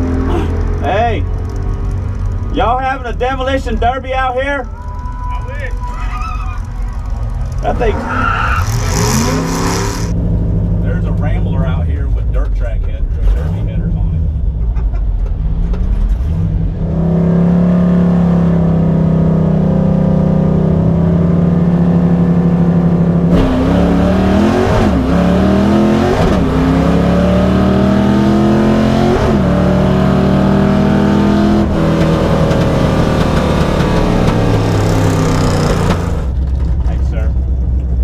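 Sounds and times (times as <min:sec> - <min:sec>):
car engine accelerating through gears: 0:05.7 - 0:11.4, 0:13.1 - 0:36.8.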